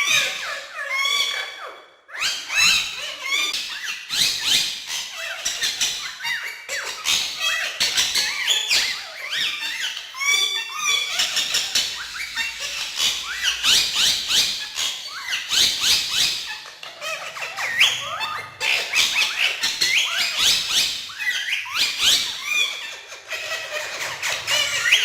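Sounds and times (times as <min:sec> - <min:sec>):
parakeets squawking and chattering: 0:00.0 - 0:25.0.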